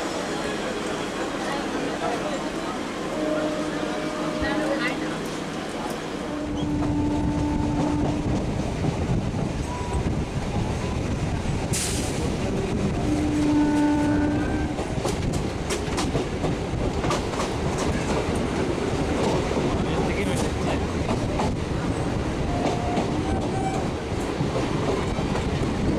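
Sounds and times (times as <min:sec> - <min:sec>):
train wheels rumbling on track: 0:00.0 - 0:25.9
train horn: 0:03.0 - 0:05.5, 0:06.2 - 0:08.4, 0:12.9 - 0:14.9, 0:22.5 - 0:23.9.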